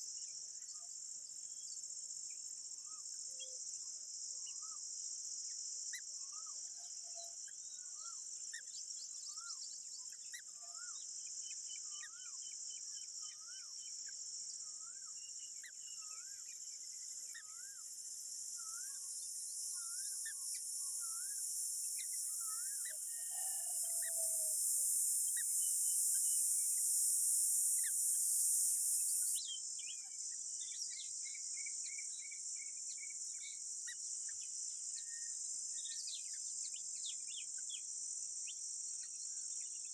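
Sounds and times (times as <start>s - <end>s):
insects buzzing: 13.6s - 29.9s.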